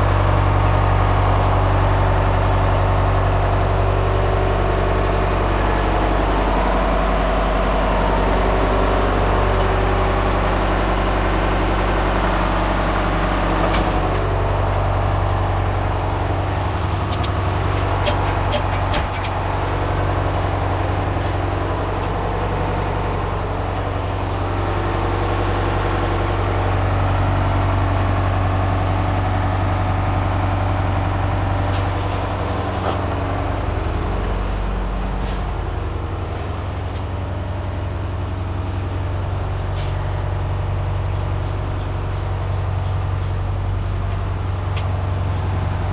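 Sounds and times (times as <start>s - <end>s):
bus engine idling: 0.0s - 45.9s.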